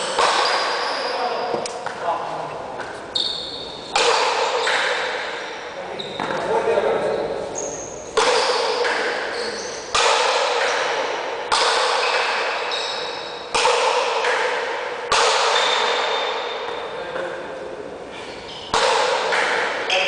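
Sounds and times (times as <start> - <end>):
paddle striking ball with echo: 0.0 - 2.0, 3.8 - 6.6, 8.0 - 17.5, 18.6 - 20.0.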